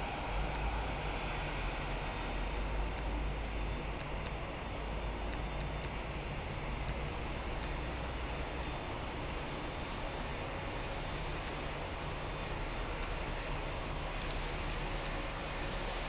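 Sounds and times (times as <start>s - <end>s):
jet aircraft roar: 0.0s - 3.7s
faint ticks: 14.1s - 15.2s.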